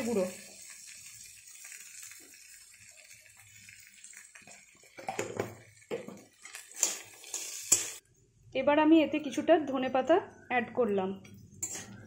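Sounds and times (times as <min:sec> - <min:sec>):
chickpeas sizzling in a pan: 0:00.0 - 0:08.0.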